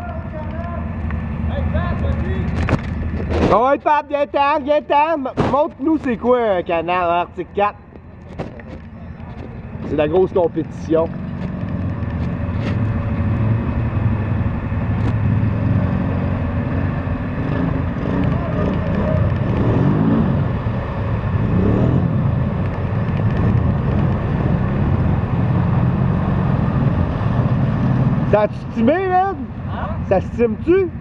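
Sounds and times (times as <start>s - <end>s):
atv engine revving under load: 9.7s - 30.1s.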